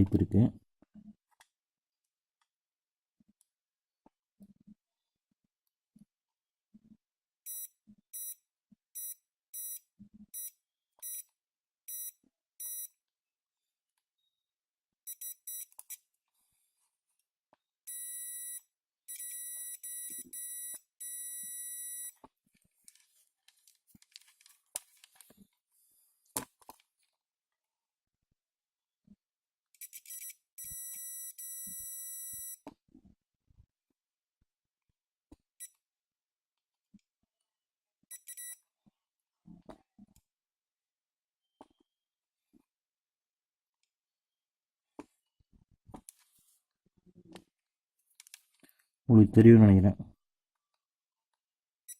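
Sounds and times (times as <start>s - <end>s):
multimeter continuity beeps: 7.4s - 8.4s, 9.0s - 11.3s, 11.9s - 13.0s, 15.1s - 16.0s, 17.9s - 22.2s, 29.8s - 32.6s, 38.1s - 38.6s.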